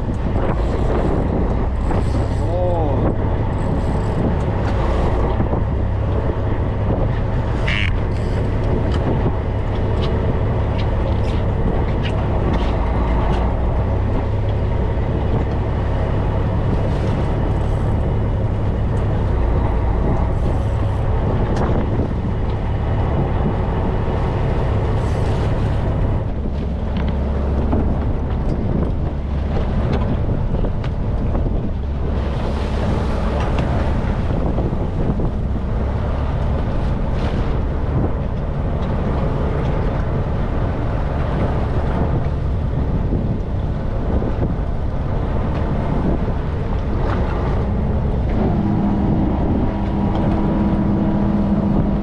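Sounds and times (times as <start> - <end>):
boat engine running: 0.0 - 52.0
wind buffeting microphone: 0.0 - 52.0.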